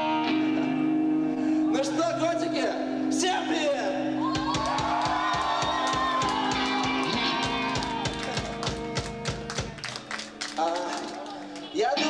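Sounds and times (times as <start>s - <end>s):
bass guitar: 0.0s - 5.0s, 5.7s - 9.9s
electric guitar chords: 0.0s - 12.0s
drum beat: 4.3s - 10.1s.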